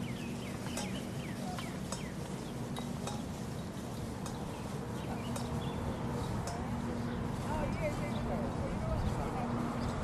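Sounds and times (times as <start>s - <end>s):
bird chirps: 0.0s - 6.4s
gear clicks and clinks: 0.0s - 9.2s
marching footsteps: 0.0s - 10.0s
steady low hum: 0.0s - 10.0s.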